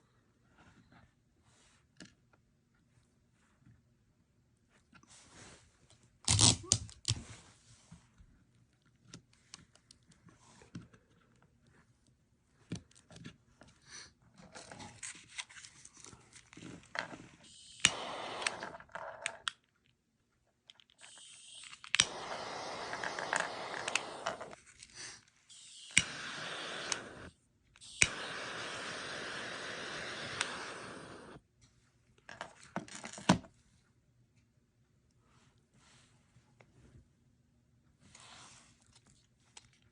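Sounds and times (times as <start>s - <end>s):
gas hissing: 17.4s - 18.9s, 21.0s - 24.6s, 25.5s - 31.4s
lighter parts clicking and scraping: 17.5s - 19.5s, 21.0s - 24.6s, 25.5s - 31.4s.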